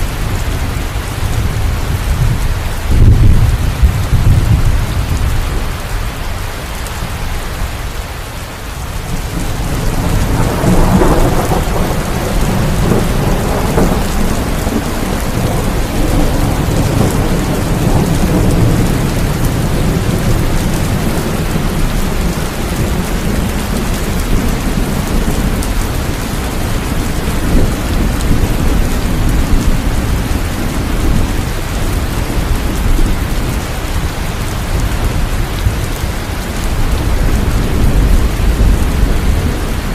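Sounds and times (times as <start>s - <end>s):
rolling thunder: 0.0s - 5.8s, 9.0s - 39.9s
steady rain: 0.0s - 39.9s.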